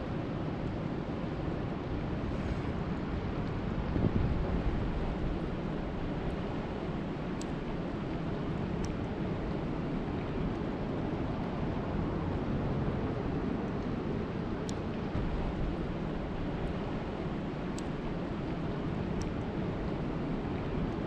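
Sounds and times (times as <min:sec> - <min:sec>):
wind buffeting microphone: 0:01.6 - 0:07.8, 0:14.9 - 0:20.7
faint ticks: 0:07.4 - 0:07.6, 0:19.2 - 0:19.5.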